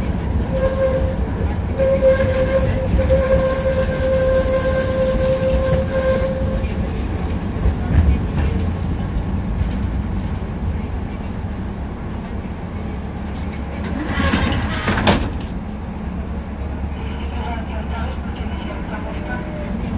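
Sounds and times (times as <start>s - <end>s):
tram wheels rumbling on track: 0.0s - 19.9s.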